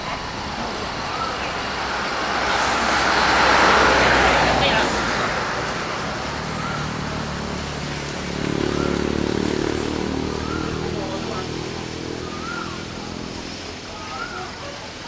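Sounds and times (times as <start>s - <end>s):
motorcycle engine running: 5.5s - 14.0s.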